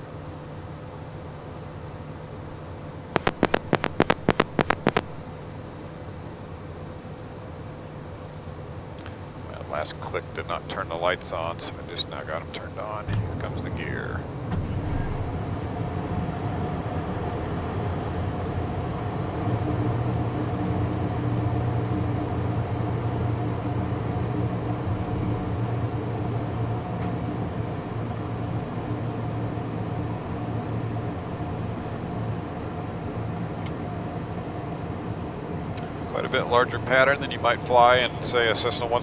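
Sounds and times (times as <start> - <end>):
cockpit airflow and engine hum: 0.0 - 39.0
faint steady tones: 0.0 - 39.0
landing gear low rumble: 13.0 - 16.2.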